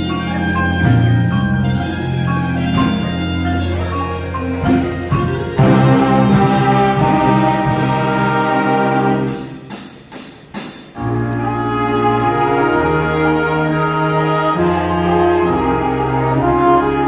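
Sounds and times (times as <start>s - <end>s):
wind band brass chords: 0.0s - 10.2s, 10.9s - 17.0s
sharp percussion hits: 0.0s - 11.5s.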